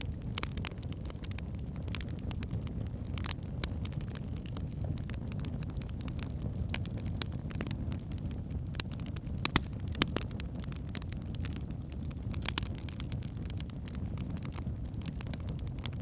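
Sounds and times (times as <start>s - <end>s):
flames rumbling: 0.1s - 16.0s
logs crackling and popping: 0.1s - 16.0s.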